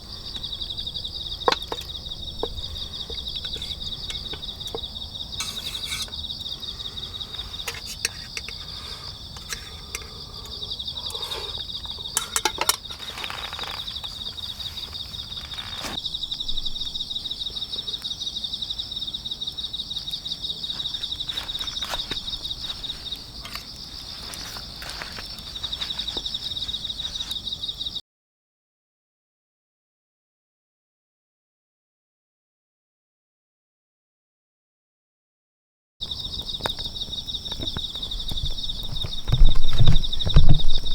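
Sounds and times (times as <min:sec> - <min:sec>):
crickets chirring: 0:00.0 - 0:28.0, 0:36.0 - 0:40.9.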